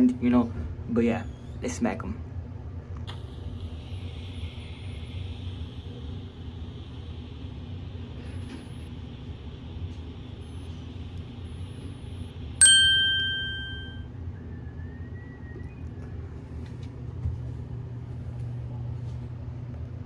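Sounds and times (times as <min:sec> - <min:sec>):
bright metallic ding: 0:12.6 - 0:13.9.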